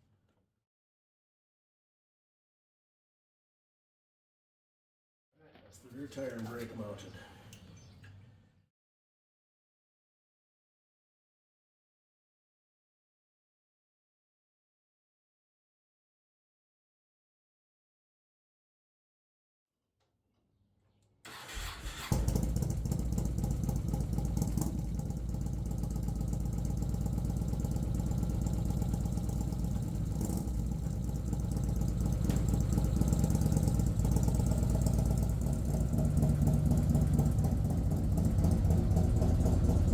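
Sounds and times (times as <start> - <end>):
motorcycle engine cranking: 21.3 - 26.6
motorcycle engine idling: 21.5 - 39.9.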